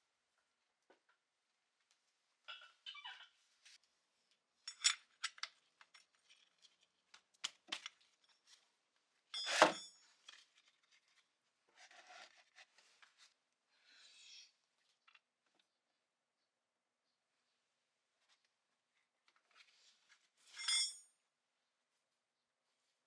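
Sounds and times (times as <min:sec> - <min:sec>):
metal tools clinking: 0:09.4 - 0:10.4, 0:20.4 - 0:21.0.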